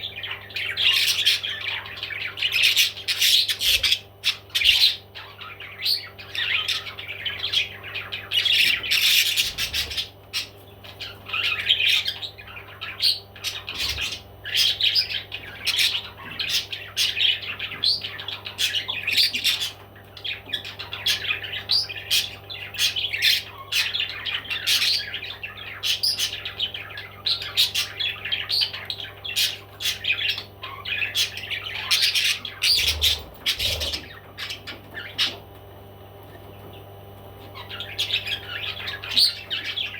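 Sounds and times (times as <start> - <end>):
baby parrots squawking: 0.0 - 35.5, 37.4 - 39.9
faint steady hum: 0.0 - 39.9.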